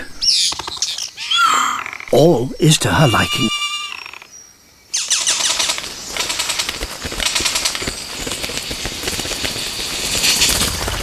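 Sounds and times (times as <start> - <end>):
bird rattling and churring song: 0.2 - 1.5, 4.9 - 11.0.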